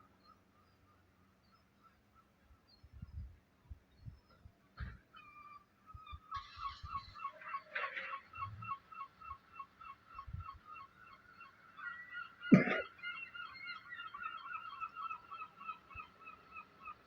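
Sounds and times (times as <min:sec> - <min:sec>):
honking animal calls: 0:06.4 - 0:09.2, 0:11.7 - 0:16.2.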